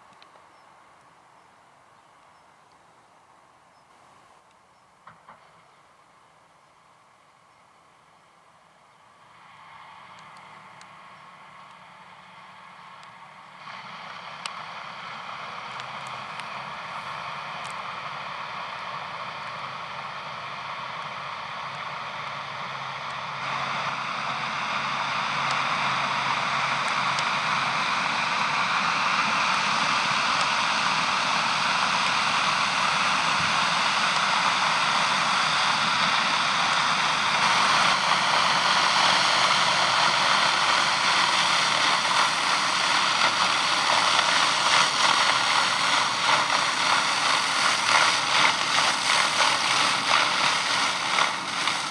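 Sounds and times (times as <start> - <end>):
tractor engine under load: 9.0 - 51.9
slurry spraying from spreader: 13.5 - 51.9.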